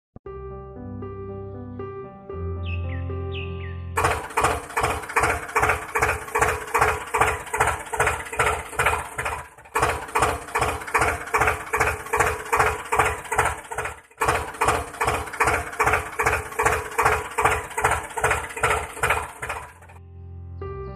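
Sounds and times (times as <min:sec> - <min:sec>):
motor hum: 0:04.0 - 0:20.0
motor mechanism clattering: 0:04.0 - 0:20.0.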